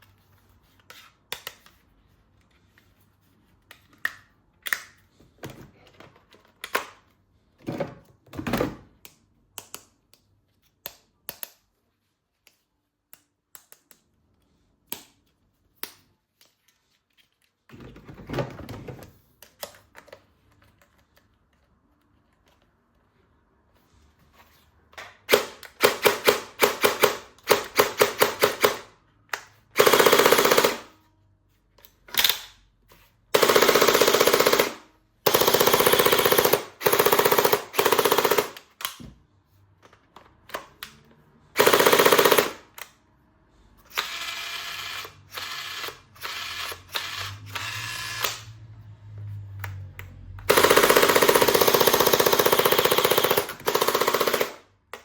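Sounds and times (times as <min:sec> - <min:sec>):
toy machine-gun bursts: 0:25.3 - 0:28.9, 0:29.8 - 0:30.9, 0:33.4 - 0:38.8, 0:41.6 - 0:42.8, 0:50.5 - 0:54.7.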